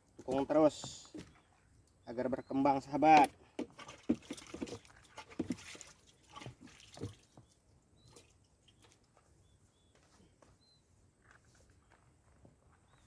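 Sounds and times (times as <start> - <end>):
soft splashes in water: 3.6 - 9.1.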